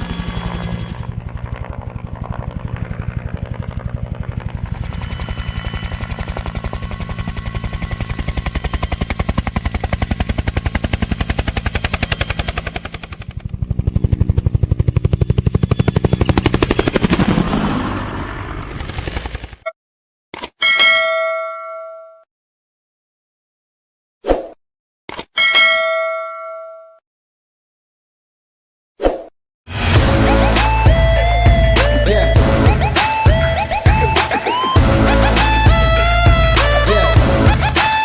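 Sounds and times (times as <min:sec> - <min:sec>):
helicopter rotor chopping: 0:00.0 - 0:19.6, 0:29.7 - 0:38.0.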